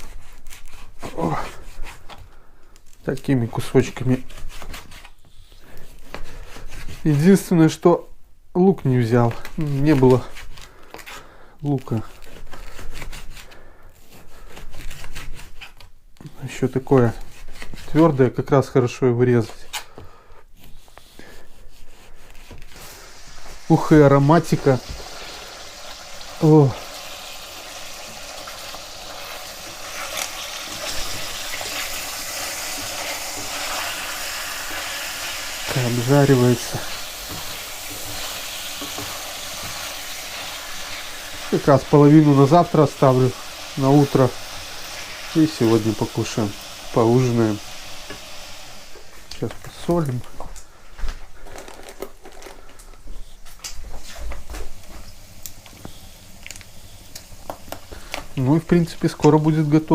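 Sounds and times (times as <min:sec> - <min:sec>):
pork sizzling in a frying pan: 0:22.8 - 0:50.4, 0:53.7 - 0:59.9
oil pops and crackles: 0:51.4 - 0:58.5.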